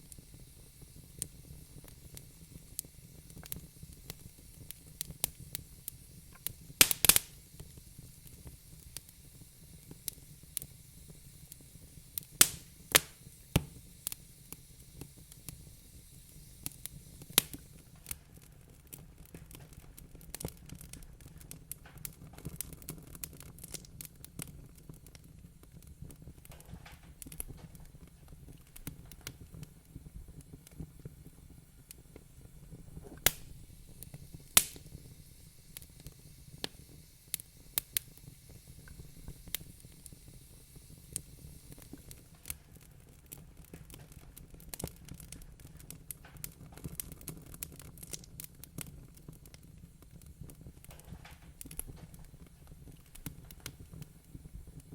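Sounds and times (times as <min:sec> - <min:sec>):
wood fire crackling: 0:00.0 - 0:54.9.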